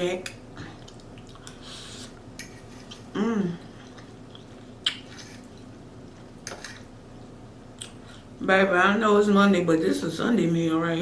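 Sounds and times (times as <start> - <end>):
quiet chewing: 0.6 - 6.9.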